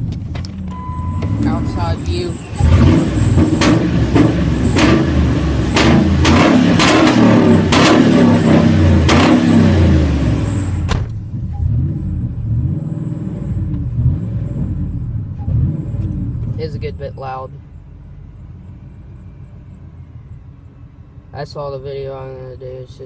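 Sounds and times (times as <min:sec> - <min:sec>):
truck engine revving: 0:00.4 - 0:17.0.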